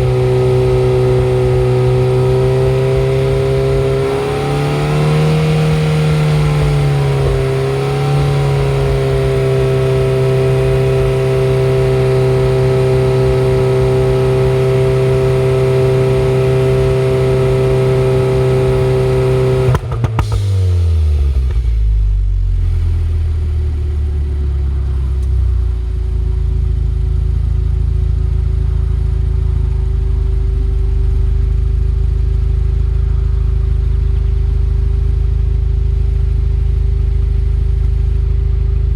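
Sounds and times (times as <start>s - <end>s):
car engine idling: 0.0s - 38.9s
car engine revving: 0.0s - 38.9s
exhaust pops: 18.2s - 25.9s.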